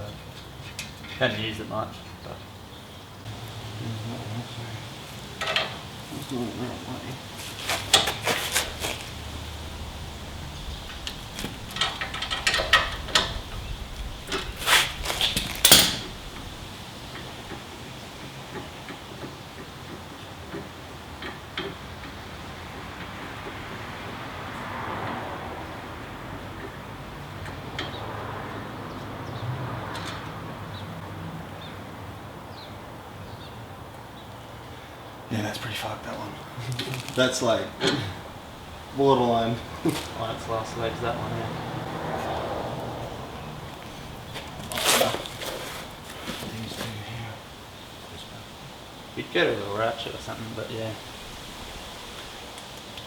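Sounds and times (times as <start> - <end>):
metallic tool clicks and knocks: 15.4 - 16.1.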